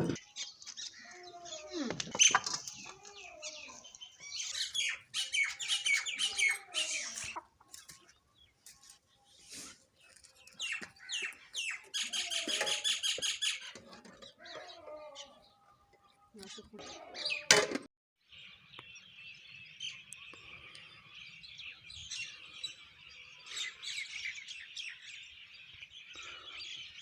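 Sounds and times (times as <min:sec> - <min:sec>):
sparrows chirping: 0:00.0 - 0:17.5, 0:18.2 - 0:27.0.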